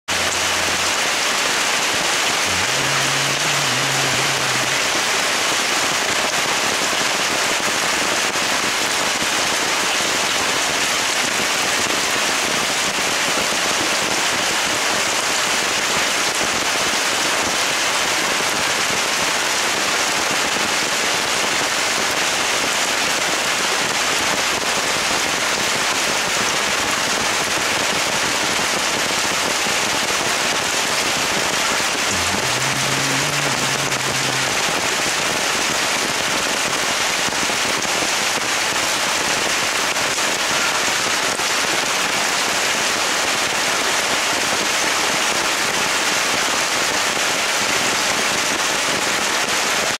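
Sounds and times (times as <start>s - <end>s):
heavy rain on tree leaves: 0.0s - 50.0s
short low tone: 2.4s - 5.1s, 32.0s - 34.8s.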